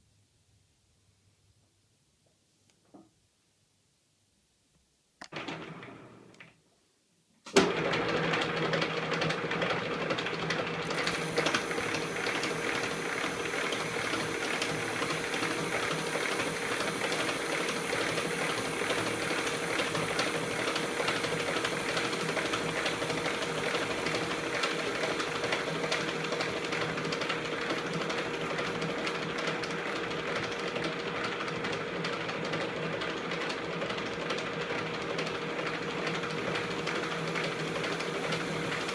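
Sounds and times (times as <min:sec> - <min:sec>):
metal lathe running: 0:10.8 - 0:30.8, 0:35.5 - 0:38.9.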